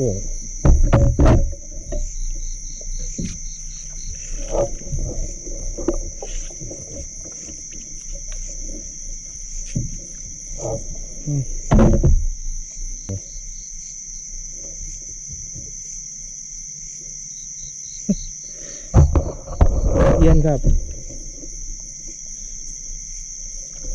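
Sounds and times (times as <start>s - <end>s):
crickets and insects chorus: 0.0s - 23.9s
handling thumps and knocks: 0.3s - 10.9s, 11.5s - 12.4s, 18.9s - 21.6s.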